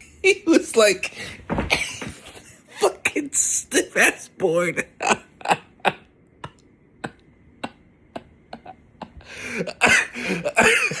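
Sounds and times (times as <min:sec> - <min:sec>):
person laughing wheezily: 0:05.0 - 0:11.0.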